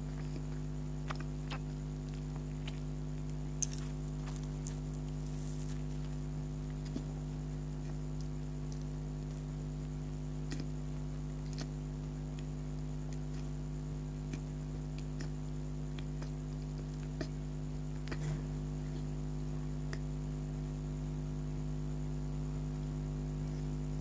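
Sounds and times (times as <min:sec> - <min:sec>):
low electrical hum: 0:00.0 - 0:24.0
wet mouth clicks and smacks eating: 0:00.2 - 0:05.1, 0:11.5 - 0:11.8.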